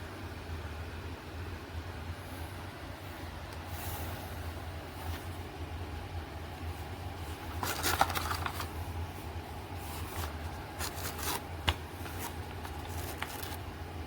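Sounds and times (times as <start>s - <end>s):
steady low hum: 0.0s - 14.0s
rustling and scraping from handling: 6.6s - 13.7s.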